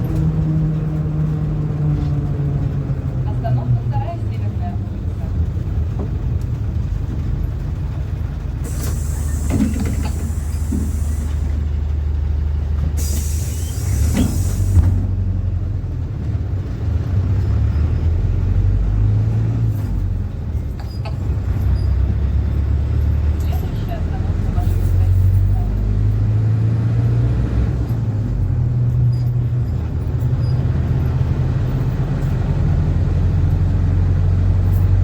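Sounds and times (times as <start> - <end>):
bus diesel engine drone: 0.0 - 35.0
compressed air hissing: 8.6 - 11.5, 13.0 - 14.9.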